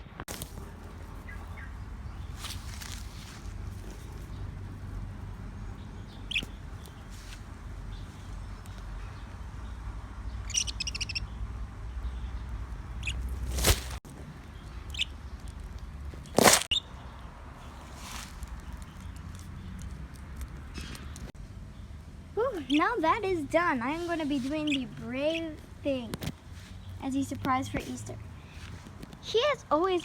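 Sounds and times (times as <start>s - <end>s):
budgerigars chirping: 6.0s - 7.1s, 10.3s - 11.4s, 12.0s - 13.4s.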